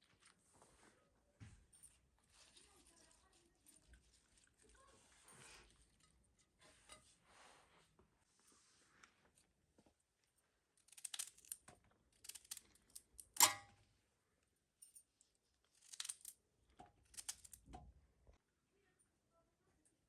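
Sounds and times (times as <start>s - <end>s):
scraping and rustling handling noises: 0.1s - 10.0s.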